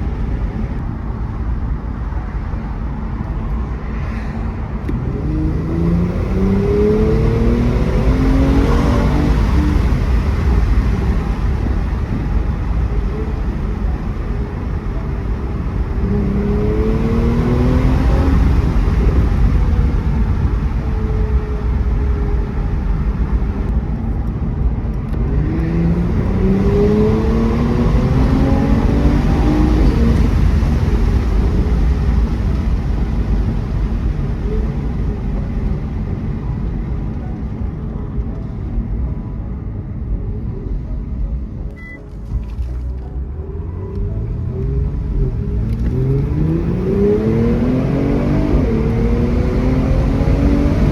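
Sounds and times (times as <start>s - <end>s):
road and tyre noise: 0.0s - 50.9s
car engine accelerating: 4.6s - 37.2s, 40.3s - 50.9s.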